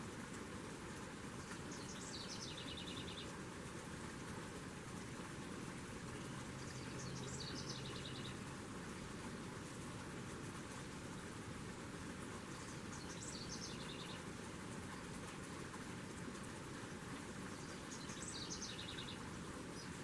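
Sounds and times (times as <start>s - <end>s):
outdoor background noise: 0.0s - 20.0s
songbird singing: 1.4s - 3.4s, 6.1s - 8.5s, 12.5s - 14.3s, 17.4s - 20.0s.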